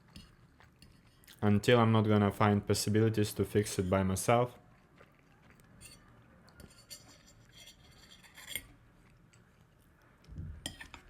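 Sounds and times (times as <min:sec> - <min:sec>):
cutlery clinking on plate: 0:06.6 - 0:08.7, 0:10.6 - 0:11.0.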